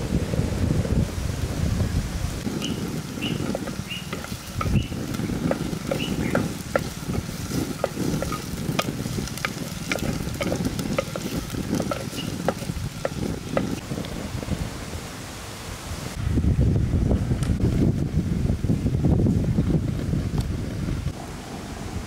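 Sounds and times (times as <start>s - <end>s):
frying sizzle with pops: 2.4s - 14.1s
wooden spatula scraping pot: 2.5s - 13.8s.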